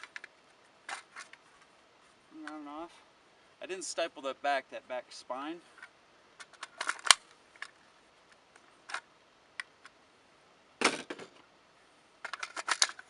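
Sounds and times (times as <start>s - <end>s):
magazine clatter: 0.0s - 1.5s, 5.8s - 7.8s, 8.6s - 10.0s, 12.2s - 13.0s
rifle magazine metal clicks: 6.4s - 7.8s, 12.2s - 13.0s.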